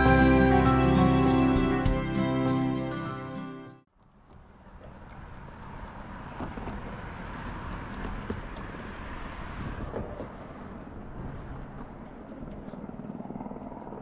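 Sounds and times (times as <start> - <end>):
distant traffic rumble: 3.9 - 14.0.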